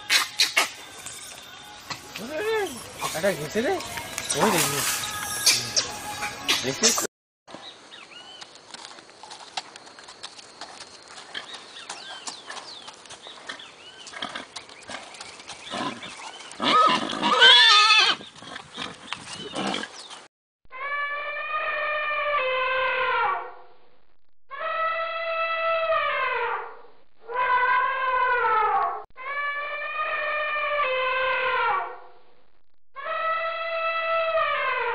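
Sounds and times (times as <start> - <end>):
horse neighing: 16.6 - 18.2.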